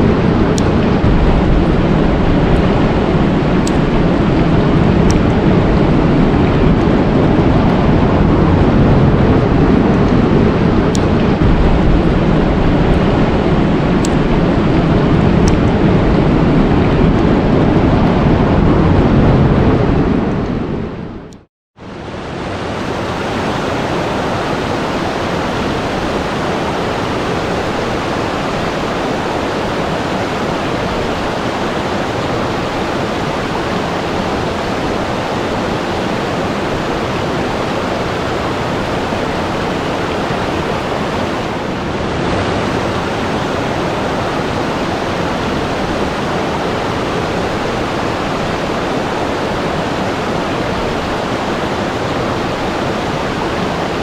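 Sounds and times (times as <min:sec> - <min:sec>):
rushing water hiss: 0:21.9 - 0:54.0.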